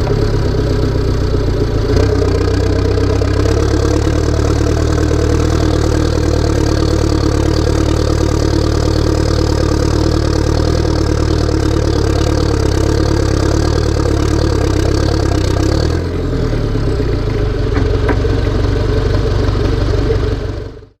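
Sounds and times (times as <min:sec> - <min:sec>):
tractor diesel engine running: 0:00.0 - 0:21.0
high whine: 0:16.5 - 0:20.9.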